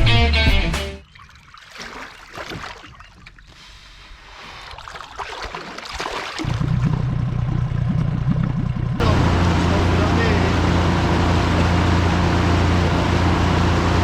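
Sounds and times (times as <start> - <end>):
water lapping against boat hull: 1.0 - 9.0
outboard motor droning: 6.4 - 14.0.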